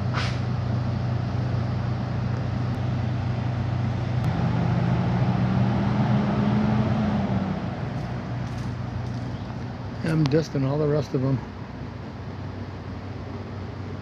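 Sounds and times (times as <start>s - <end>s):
second engine running: 0.0s - 10.4s
vehicle engines idling: 0.0s - 14.0s.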